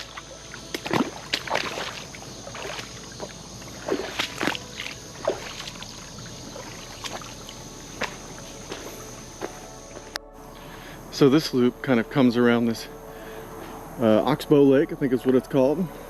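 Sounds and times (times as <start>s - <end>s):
footsteps splashing through water: 0.0s - 10.9s
insects droning: 0.0s - 16.0s.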